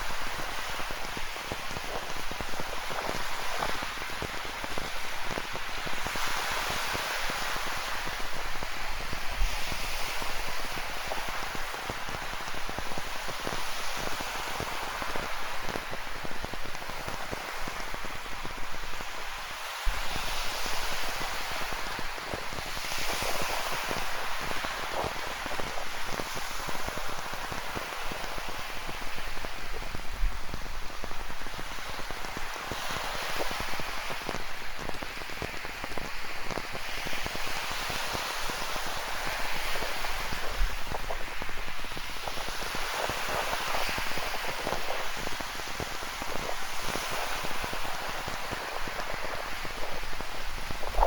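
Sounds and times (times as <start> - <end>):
ocean surf washing in: 2.7 - 51.0.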